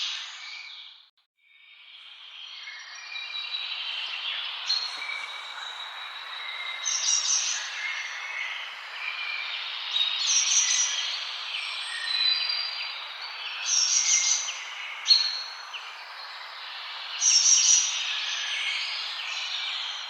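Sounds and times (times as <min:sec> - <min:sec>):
forest birds singing: 0:00.0 - 0:20.0.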